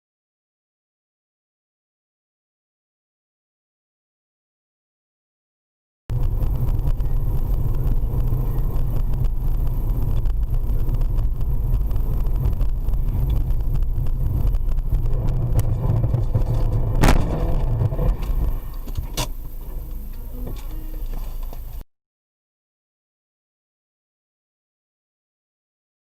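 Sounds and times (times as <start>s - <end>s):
car driving rumble: 6.1s - 21.8s
loud sharp bang: 11.8s - 19.4s.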